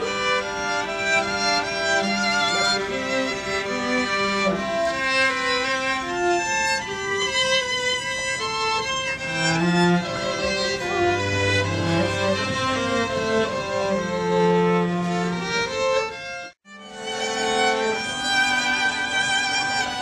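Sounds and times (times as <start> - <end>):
solo violin melody: 0.0 - 20.0.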